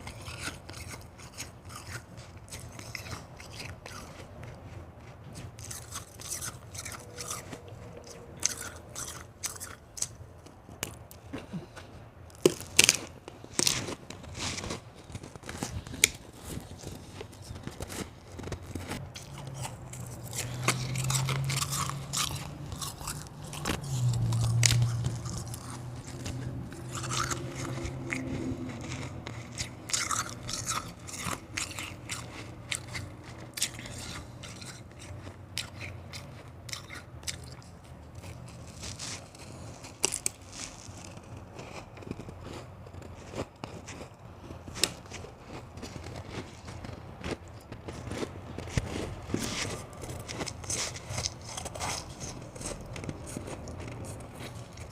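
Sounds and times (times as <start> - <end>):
chewing crunchy ice: 0.0 - 54.9
low hum: 14.2 - 34.4.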